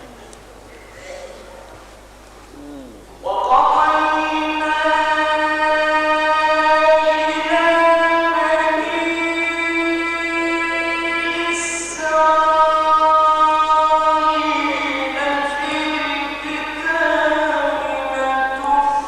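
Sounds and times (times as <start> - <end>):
man chanting recitation: 2.6 - 19.0.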